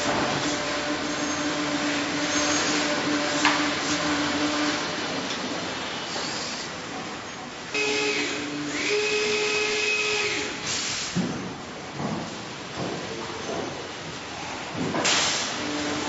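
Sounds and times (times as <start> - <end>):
factory machinery rushing noise: 0.0 - 7.2
machinery hum: 0.0 - 10.7.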